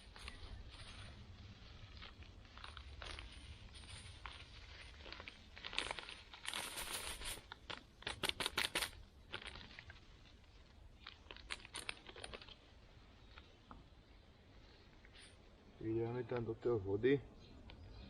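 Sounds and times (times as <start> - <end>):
bag crinkling and rustling: 0.0 - 13.7.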